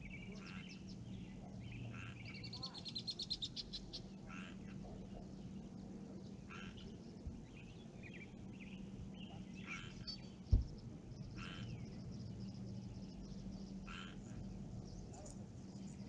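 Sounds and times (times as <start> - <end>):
frogs croaking: 0.0 - 7.3, 8.4 - 16.0
faint bird chirps: 0.0 - 16.0
steady low hum: 0.0 - 16.0
low thump: 10.5 - 10.8.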